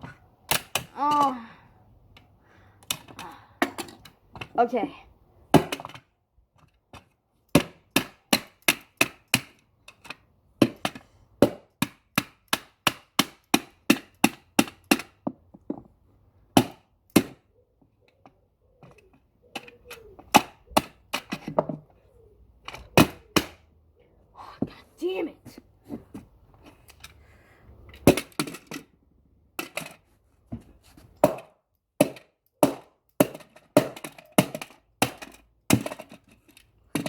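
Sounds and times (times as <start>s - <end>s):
hammer smashing plastic toy: 5.5s - 6.0s, 16.6s - 17.4s, 31.2s - 36.2s.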